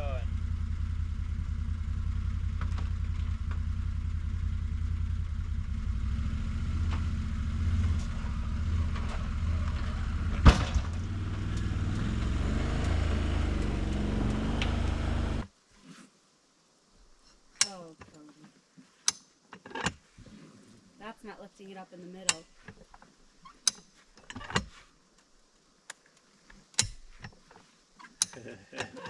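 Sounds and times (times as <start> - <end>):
engine droning: 0.0 - 15.5.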